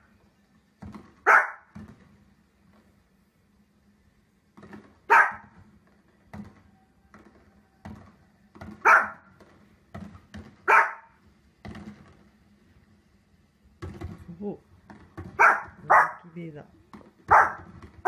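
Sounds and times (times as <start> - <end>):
small dog barking: 1.2 - 1.7, 5.1 - 5.5, 8.8 - 9.3, 10.6 - 11.2, 15.4 - 16.3, 17.3 - 17.7.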